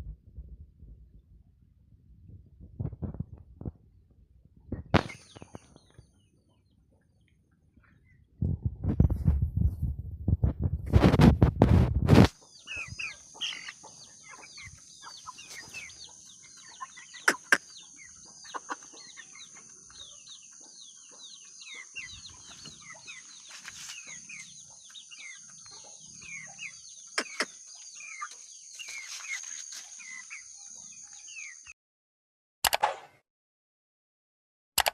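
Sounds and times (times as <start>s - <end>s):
chicks peeping: 4.7s - 7.2s, 11.9s - 31.7s.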